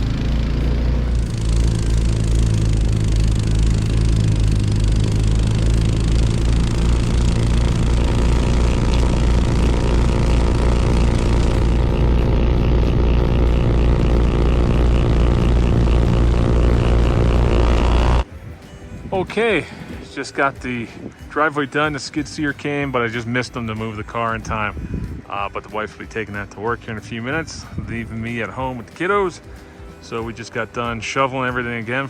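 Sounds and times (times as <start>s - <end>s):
snowblower engine running: 0.0s - 18.3s.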